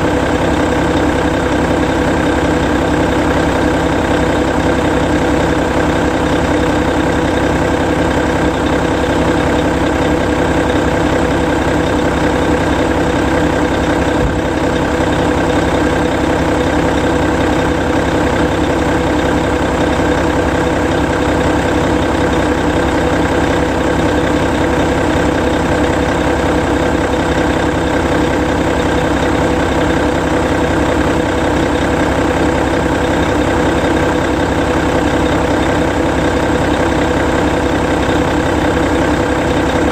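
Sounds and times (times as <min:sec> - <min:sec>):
bus diesel engine idling: 0:00.0 - 0:39.9.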